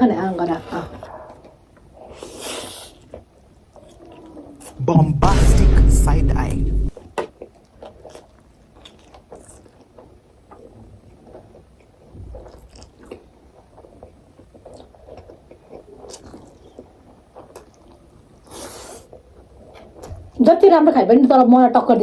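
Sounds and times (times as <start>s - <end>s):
person chewing food: 1.3s - 4.8s, 7.4s - 20.1s.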